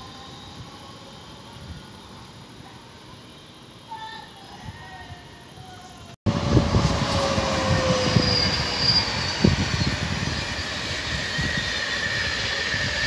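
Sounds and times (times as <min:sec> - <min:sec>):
train wheels rumbling on rails: 0:05.6 - 0:13.0
descending squealing tone: 0:06.3 - 0:13.0.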